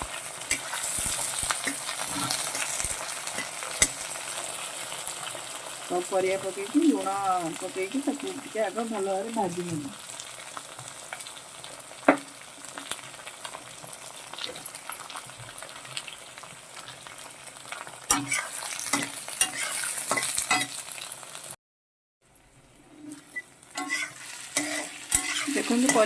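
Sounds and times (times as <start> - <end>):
spatula scraping a pan: 0.0 - 4.6, 18.1 - 20.8, 22.9 - 26.0
vegetables sizzling in hot oil: 0.0 - 21.6, 22.3 - 26.0.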